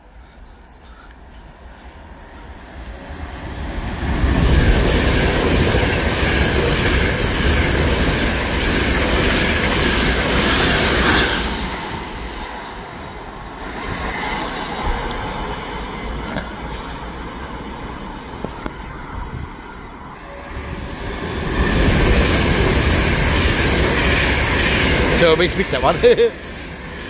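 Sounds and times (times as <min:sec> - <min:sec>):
train wheels rushing on rail: 0:00.0 - 0:18.9, 0:20.2 - 0:27.0.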